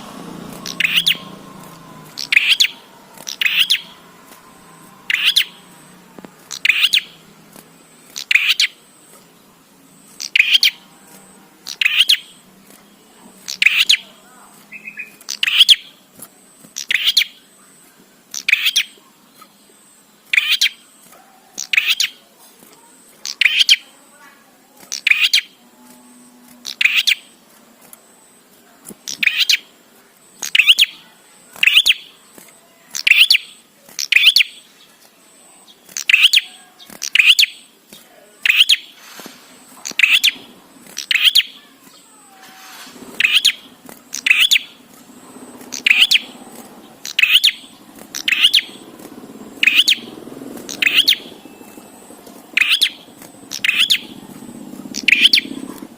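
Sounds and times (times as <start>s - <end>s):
bird giving sharp calls: 0.0s - 7.2s, 8.0s - 8.9s, 10.2s - 10.8s, 11.6s - 12.4s, 13.4s - 16.0s, 16.8s - 17.5s, 26.6s - 27.4s, 29.0s - 29.7s, 30.4s - 31.0s, 36.0s - 37.7s, 38.4s - 55.9s.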